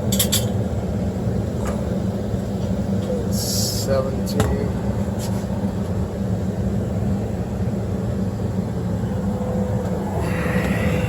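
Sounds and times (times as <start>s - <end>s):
furnace blower hum and air rush: 0.7s - 11.0s
steady tone: 8.8s - 11.0s.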